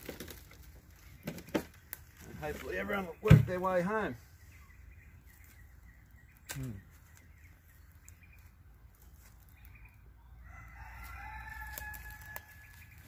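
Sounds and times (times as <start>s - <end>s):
distant bird calling: 0.9s - 8.6s.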